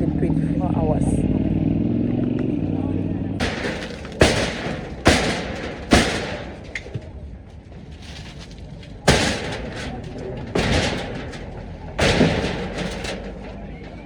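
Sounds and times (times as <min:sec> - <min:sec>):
heavy demolition impacts: 0:03.4 - 0:14.0.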